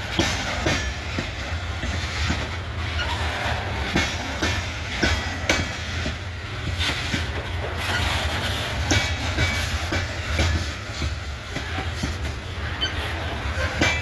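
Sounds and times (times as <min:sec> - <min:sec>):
freight train rumbling: 0:00.0 - 0:14.0
train wheels clacking on rails: 0:00.0 - 0:14.0.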